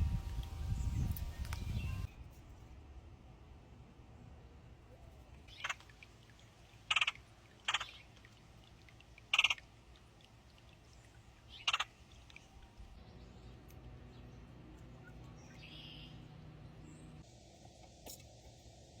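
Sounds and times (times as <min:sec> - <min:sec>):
bird harsh calls: 0:06.9 - 0:08.1, 0:09.3 - 0:09.6, 0:11.5 - 0:12.0.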